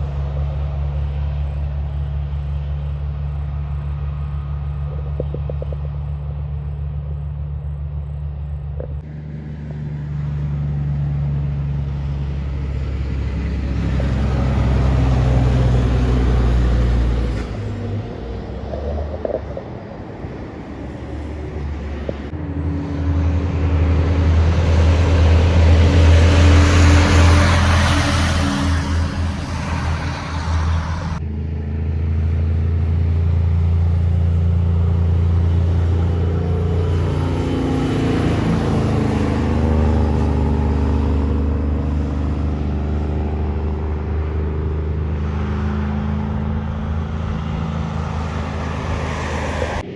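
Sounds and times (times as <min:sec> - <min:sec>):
diesel truck engines passing: 0:00.0 - 0:49.9.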